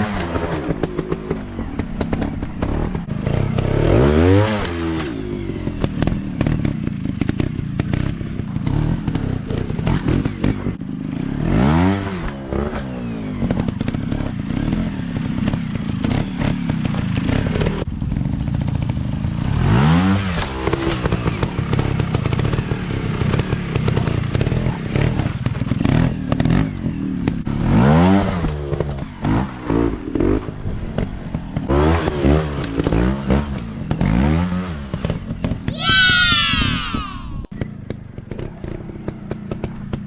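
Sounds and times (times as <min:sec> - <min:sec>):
dirt bike engines revving: 0:35.7 - 0:37.5.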